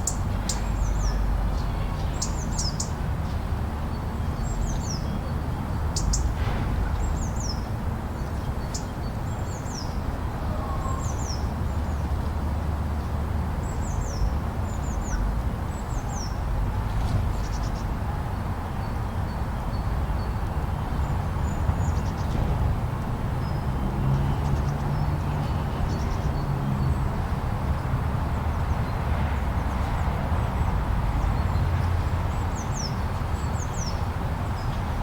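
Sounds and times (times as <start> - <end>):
small birds chirping: 6.0 - 6.3.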